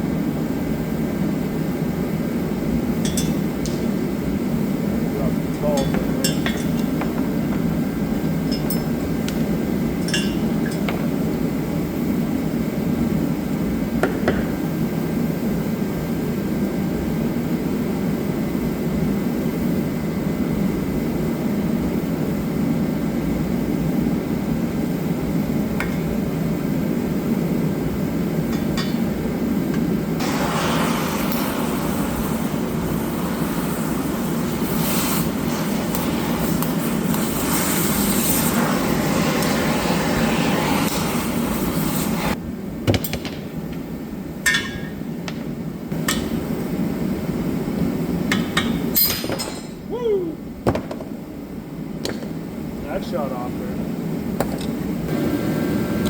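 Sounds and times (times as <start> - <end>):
loud hissing rush: 4.9 - 6.4, 30.2 - 42.4
tools clinking on metal: 5.8 - 6.9, 8.5 - 9.0, 10.0 - 11.0, 44.5 - 45.0.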